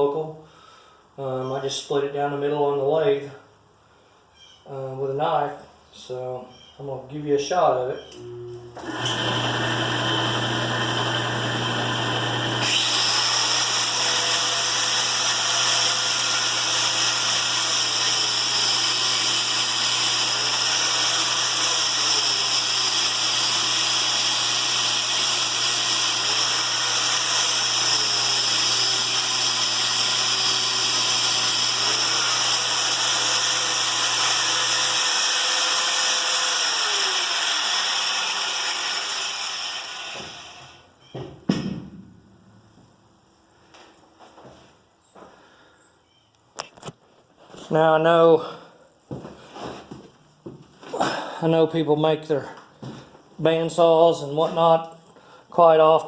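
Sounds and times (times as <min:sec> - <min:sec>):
angle grinder motor whine: 0:08.1 - 0:40.9.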